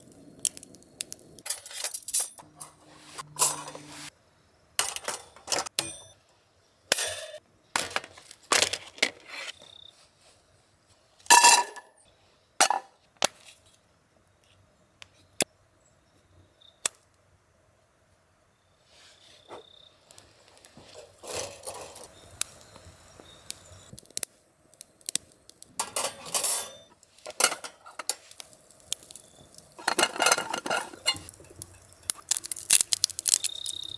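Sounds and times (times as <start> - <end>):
metal stand clinking and scraping: 1.4 - 4.1, 4.8 - 6.2, 6.9 - 8.0, 11.3 - 11.9, 20.9 - 22.2, 25.8 - 28.3, 29.8 - 31.9.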